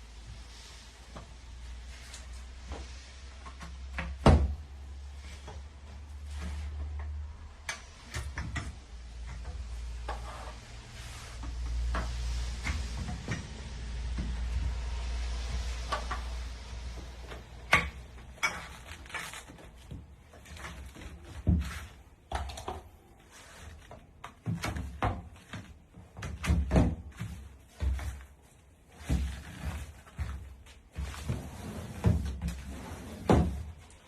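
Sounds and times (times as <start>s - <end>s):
low rumble: 11.0s - 18.4s.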